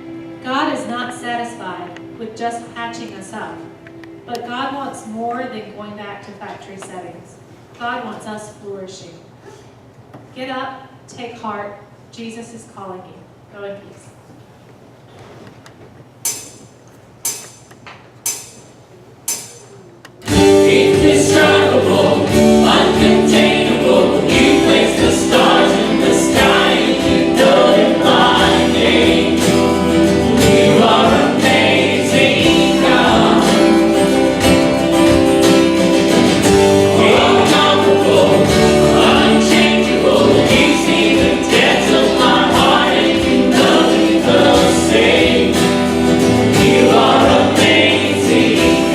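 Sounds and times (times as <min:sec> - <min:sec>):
sharp count-in clicks: 0:17.2 - 0:18.7
band with guitar: 0:20.2 - 0:48.9
choir singing gospel song: 0:20.3 - 0:48.9.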